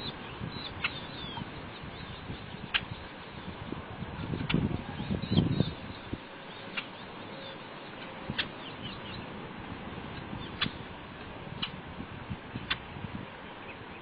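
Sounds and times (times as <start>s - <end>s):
bird chirps: 0.0s - 3.6s, 4.2s - 9.3s
outdoor hiss: 0.0s - 14.0s.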